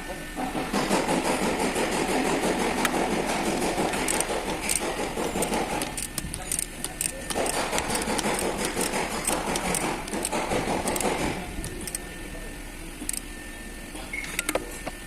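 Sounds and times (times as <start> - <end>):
tools rattling on belt drive: 0.7 - 12.0.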